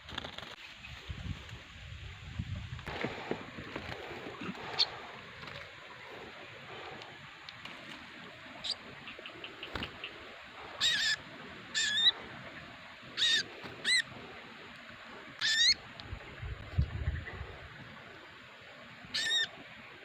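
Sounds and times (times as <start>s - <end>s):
small bird calling: 4.2s - 7.0s, 8.2s - 14.6s, 15.2s - 15.9s, 19.0s - 20.0s.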